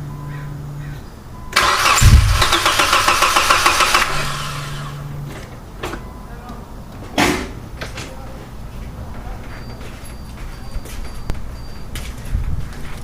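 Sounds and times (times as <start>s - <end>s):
steady low hum: 0.0s - 7.0s
starter motor cranking engine: 1.6s - 5.1s.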